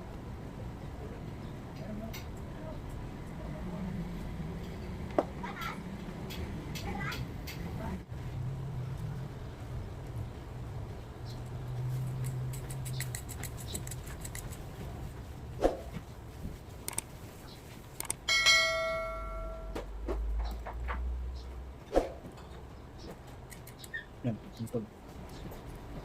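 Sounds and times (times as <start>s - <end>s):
metallic ring: 18.3s - 19.8s.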